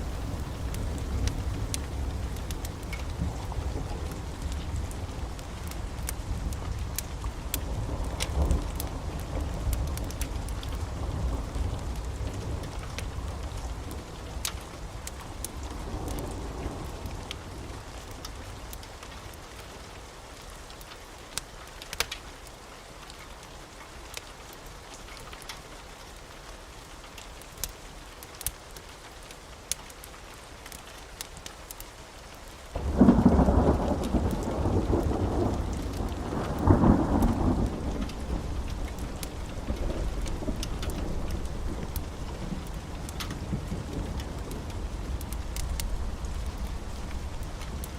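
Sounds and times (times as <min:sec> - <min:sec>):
sharp crackles: 0:00.0 - 0:16.4, 0:32.7 - 0:47.9
thunder rumbling: 0:00.0 - 0:17.3, 0:32.8 - 0:47.9
steady rain: 0:00.0 - 0:47.9.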